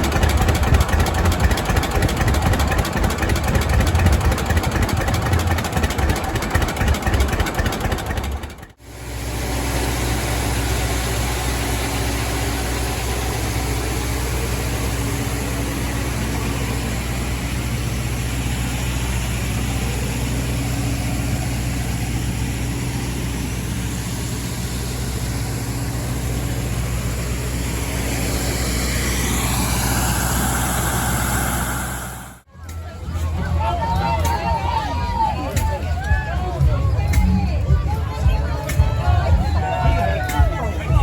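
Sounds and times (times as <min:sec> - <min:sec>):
engine running steadily: 0:00.0 - 0:41.0
high whine gliding: 0:23.5 - 0:32.5.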